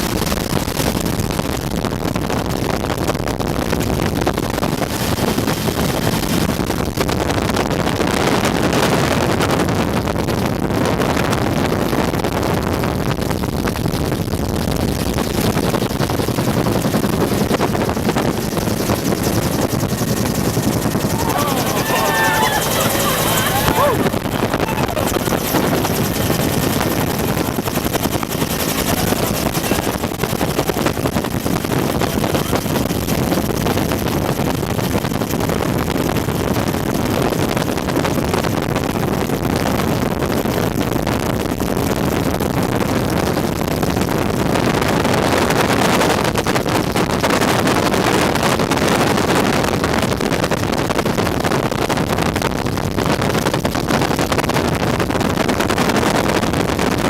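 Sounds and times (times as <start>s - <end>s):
wind rush on microphone: 0.0s - 57.0s
helicopter turbine and rotors: 4.7s - 6.8s, 14.9s - 38.1s.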